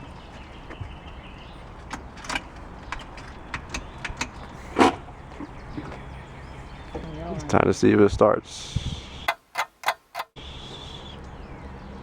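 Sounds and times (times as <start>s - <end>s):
sharp clicks and knocks: 1.7s - 6.0s, 9.3s - 10.4s.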